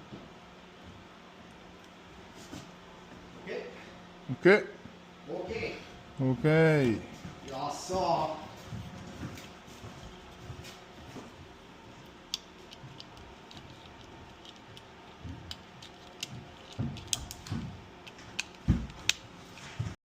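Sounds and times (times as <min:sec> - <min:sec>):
small parts clicking: 0:12.3 - 0:19.2.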